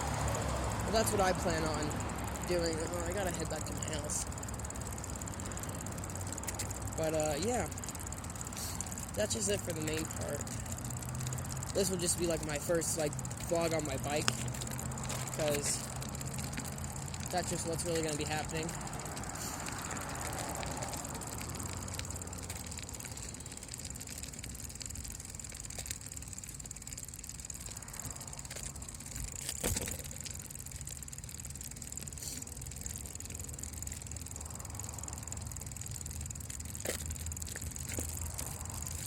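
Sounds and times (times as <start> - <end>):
wind and rolling noise: 0.0 - 39.0.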